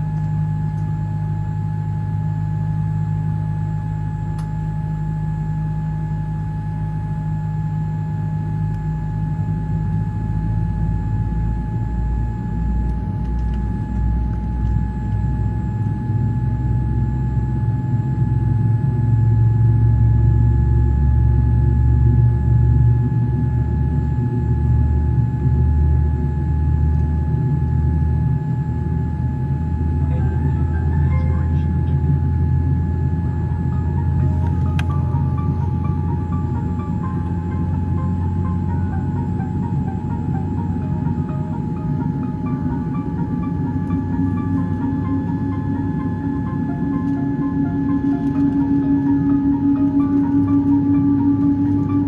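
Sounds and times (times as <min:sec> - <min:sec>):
steady engine whine: 0:00.0 - 0:52.0
aircraft cabin rumble: 0:08.9 - 0:16.5, 0:26.9 - 0:52.0.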